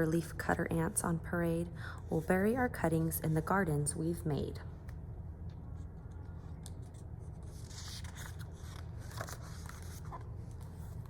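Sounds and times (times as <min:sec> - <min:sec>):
steady low hum: 0:00.0 - 0:11.0
paper page rustling: 0:05.8 - 0:11.0.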